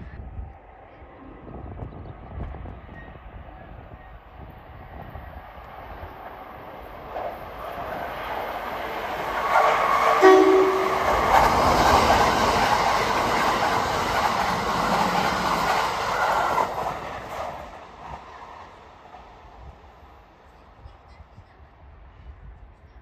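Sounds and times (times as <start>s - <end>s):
train wheels rumbling on rails: 1.5s - 22.4s
train horn blast: 9.6s - 11.5s.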